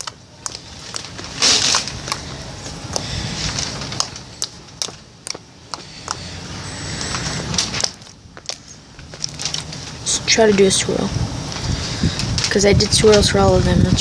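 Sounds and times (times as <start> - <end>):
slime clicking and popping: 0.0 - 1.1.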